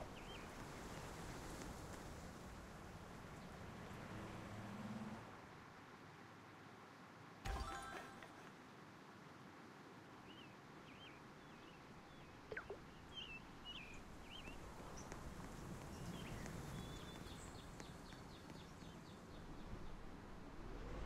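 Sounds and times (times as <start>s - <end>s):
low background noise: 0.0s - 21.0s
faint bird chirps: 10.2s - 15.1s.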